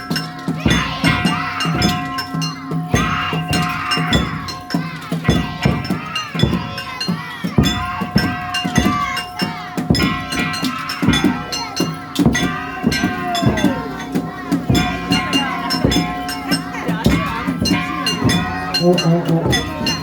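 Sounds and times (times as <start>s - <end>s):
taiko drums beating: 0.0s - 20.0s
voices calling: 0.0s - 20.0s
small hand gongs clanging: 7.7s - 20.0s
steady held high tone: 11.2s - 20.0s.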